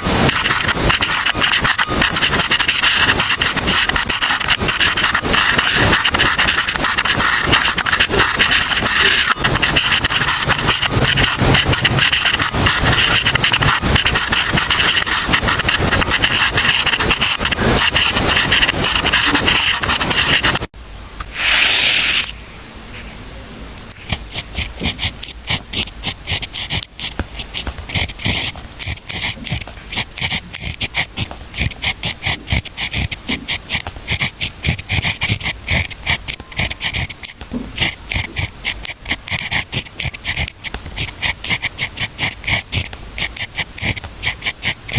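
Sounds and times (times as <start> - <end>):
pen scratching on paper: 0.0 - 20.7, 21.3 - 22.4, 23.9 - 44.9
short pen strokes: 0.0 - 20.7, 21.3 - 22.4
brief rush of noise: 21.3 - 22.4.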